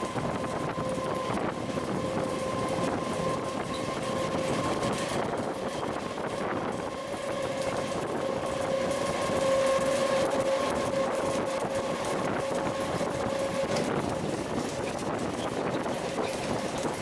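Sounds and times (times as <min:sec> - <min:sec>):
train running rumble: 0:00.0 - 0:17.0
train whine: 0:00.0 - 0:17.0.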